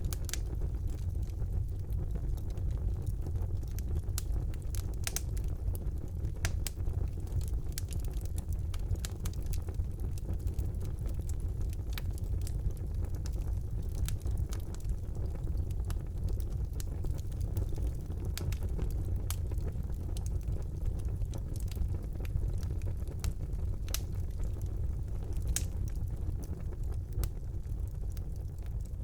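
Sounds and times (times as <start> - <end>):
fire rumbling: 0.0 - 29.0
wood crackling and popping: 0.0 - 29.0.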